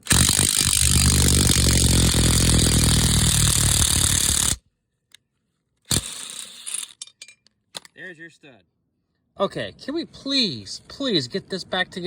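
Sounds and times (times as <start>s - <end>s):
impact wrench hammering: 0.0s - 4.6s.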